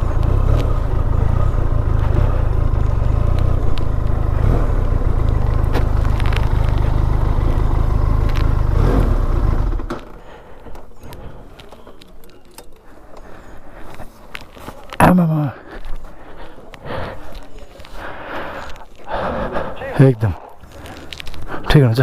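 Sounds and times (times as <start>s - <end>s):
motorcycle engine running: 0.0s - 13.0s
small clicks and clatter: 4.8s - 8.6s, 20.7s - 21.5s.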